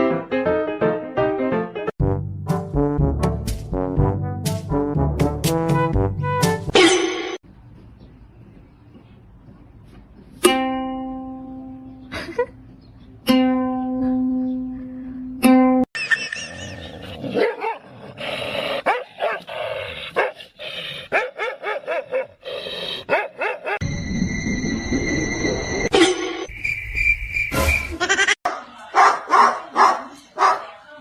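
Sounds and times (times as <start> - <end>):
music: 0.0 - 6.8
plucked string notes: 10.4 - 12.0, 13.2 - 15.9
dog barking: 17.4 - 17.8, 18.8 - 19.5, 20.2 - 20.4, 21.1 - 22.4, 23.1 - 23.8, 28.5 - 30.7.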